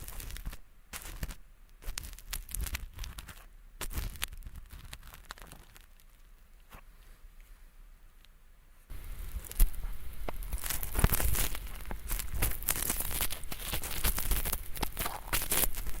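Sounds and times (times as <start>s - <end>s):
ear pick scraping microphone: 8.9s - 16.0s.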